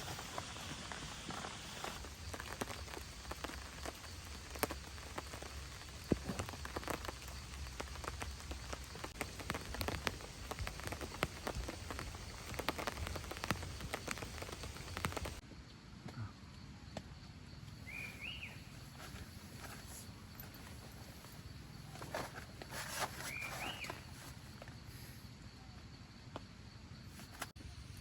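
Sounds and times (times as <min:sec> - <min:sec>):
rain falling on a shelter: 0:00.0 - 0:15.4, 0:21.9 - 0:24.3.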